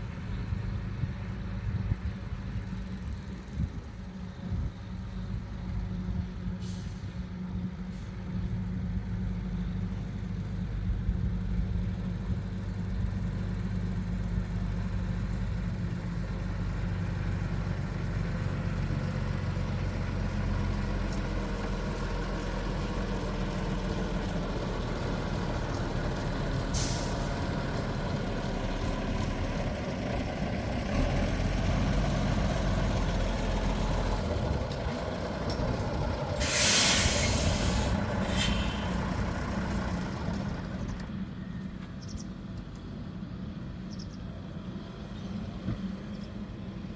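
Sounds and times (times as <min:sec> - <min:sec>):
lorry engine running: 0:00.0 - 0:46.9
air brakes hissing: 0:06.5 - 0:07.2, 0:26.7 - 0:27.5, 0:36.3 - 0:40.4.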